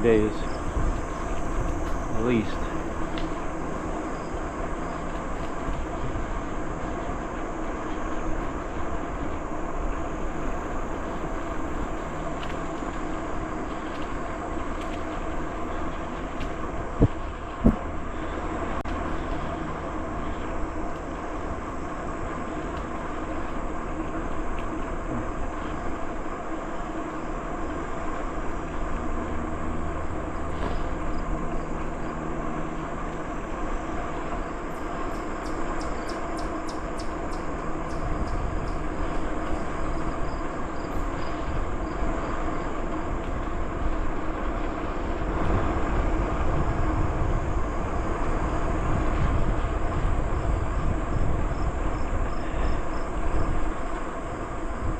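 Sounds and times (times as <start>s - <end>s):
bicycle rolling on trail: 0.0s - 54.9s
low rumble: 8.4s - 22.4s.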